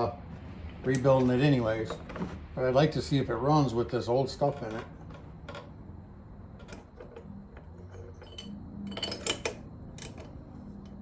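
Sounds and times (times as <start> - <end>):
metal tools clinking: 4.4 - 5.7, 6.6 - 10.4.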